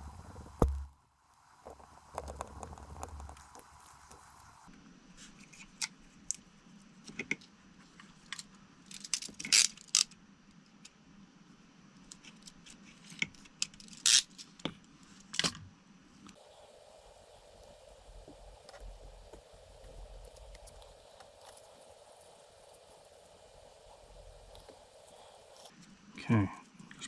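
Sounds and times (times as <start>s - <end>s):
small tools clicking and scraping: 1.5s - 4.7s, 16.4s - 25.7s.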